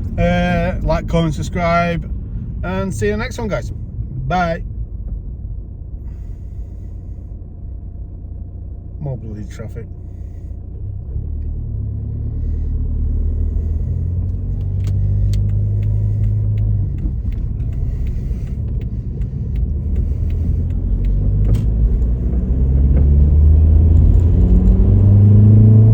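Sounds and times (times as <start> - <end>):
car engine and road rumble: 0.0 - 25.9
light clicks: 14.6 - 22.1.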